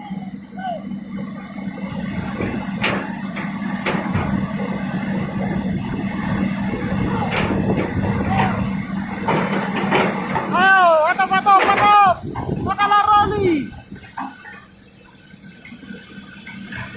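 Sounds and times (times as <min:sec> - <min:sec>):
excavator diesel engine running: 0:00.0 - 0:16.9
sharp knocks: 0:02.3 - 0:04.6.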